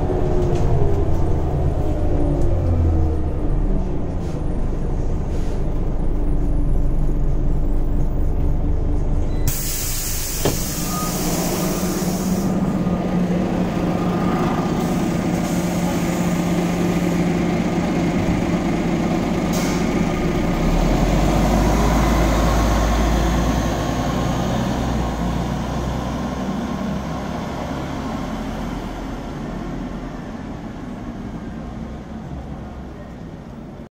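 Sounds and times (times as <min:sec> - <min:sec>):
deep rumble: 0:00.0 - 0:09.5
bus running hum: 0:00.0 - 0:33.9
air hiss: 0:09.5 - 0:12.6.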